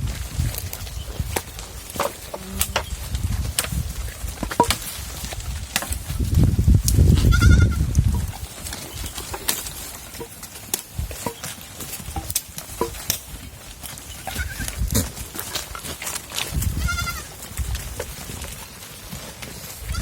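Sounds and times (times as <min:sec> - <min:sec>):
goat bleating: 0:07.2 - 0:08.0, 0:14.2 - 0:15.1, 0:16.6 - 0:17.4.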